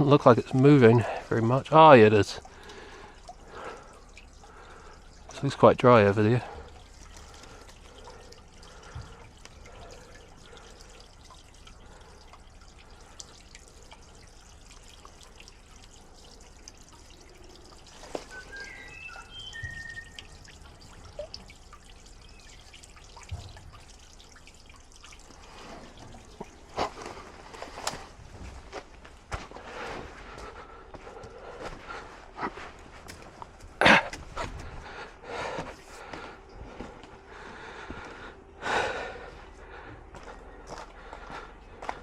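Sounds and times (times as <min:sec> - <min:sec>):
water trickling: 0:00.0 - 0:42.0
short high chirps: 0:18.3 - 0:20.3.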